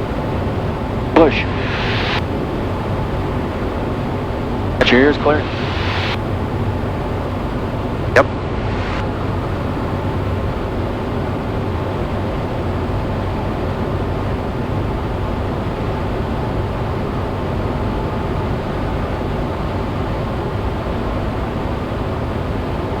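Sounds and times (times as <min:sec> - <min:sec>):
wind rush: 0:00.0 - 0:12.0
propeller plane engine: 0:00.0 - 0:23.0.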